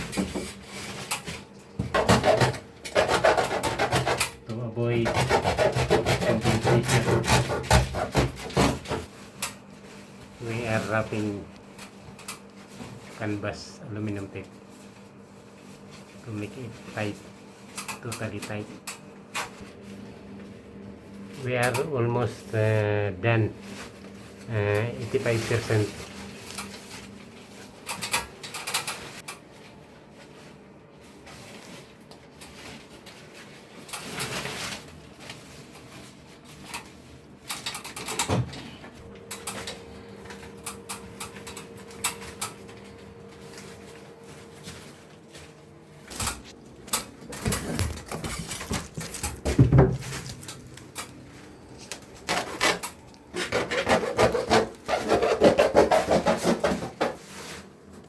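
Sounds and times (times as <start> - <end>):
tape rubbing and scraping on pipe: 0.2 - 10.9, 51.8 - 57.7
tape crackling: 39.1 - 55.6.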